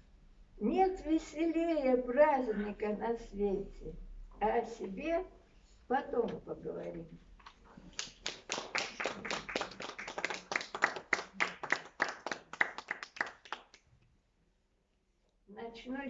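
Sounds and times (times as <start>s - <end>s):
small audience clapping: 7.8s - 14.0s.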